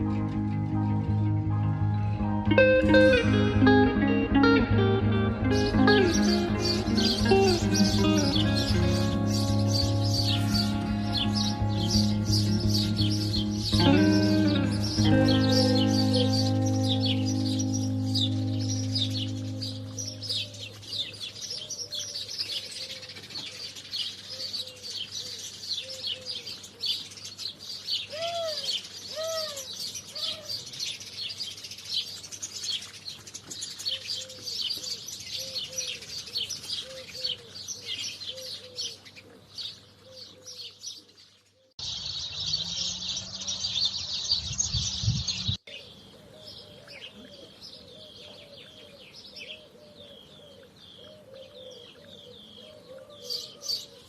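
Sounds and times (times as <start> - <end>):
sparrows chirping: 4.4 - 54.0
soft cooing call: 28.1 - 30.6, 36.8 - 39.4, 46.2 - 54.0.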